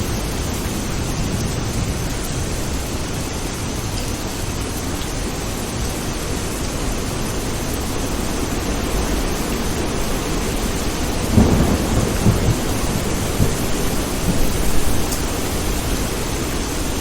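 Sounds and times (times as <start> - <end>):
heavy rain: 0.0 - 17.0
thunder rumble: 9.8 - 17.0.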